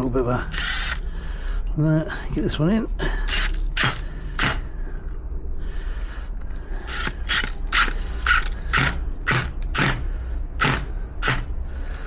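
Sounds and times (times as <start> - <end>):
hand tool scraping: 3.3 - 4.7.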